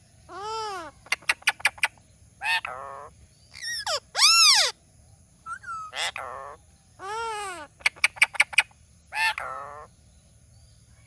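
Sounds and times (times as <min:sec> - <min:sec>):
parrot chirping: 0:00.3 - 0:04.7, 0:05.5 - 0:09.9
parrot squawking: 0:00.3 - 0:04.7, 0:05.5 - 0:09.9.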